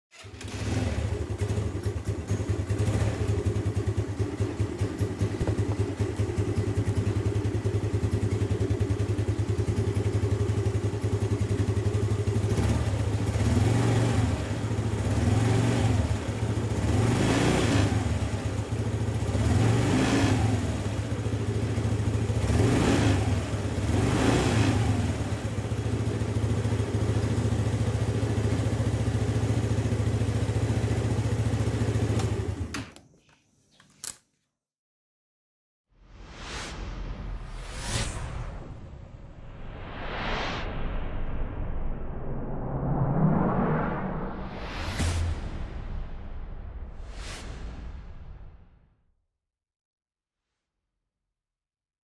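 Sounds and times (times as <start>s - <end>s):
scooter engine revving: 0.1s - 32.8s.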